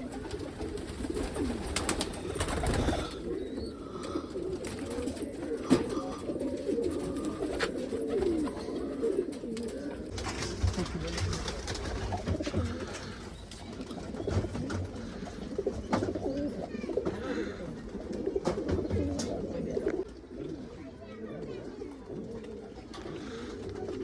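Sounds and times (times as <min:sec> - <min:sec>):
pigeons cooing: 0:00.0 - 0:24.0.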